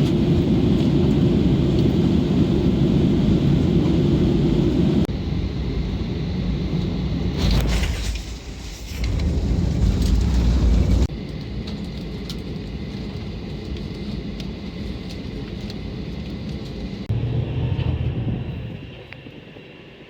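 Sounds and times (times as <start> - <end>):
train rumbling on rails: 0.0 - 11.3, 16.1 - 20.0.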